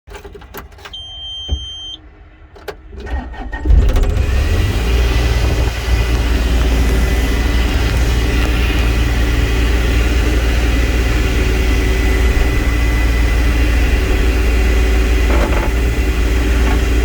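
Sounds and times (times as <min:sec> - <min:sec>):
diesel engine cranking and idling: 0:00.1 - 0:17.0
high beep: 0:01.0 - 0:02.0.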